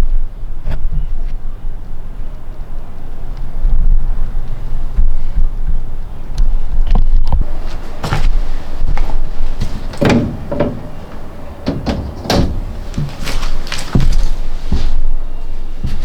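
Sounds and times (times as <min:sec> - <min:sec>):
irregular knocks and clunks: 0:07.5 - 0:15.0.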